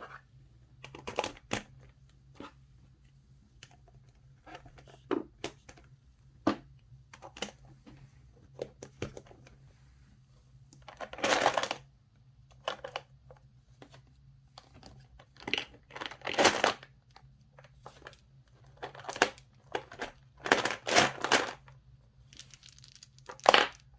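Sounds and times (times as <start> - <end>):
plastic crinkling and rustling: 22.3 - 23.8.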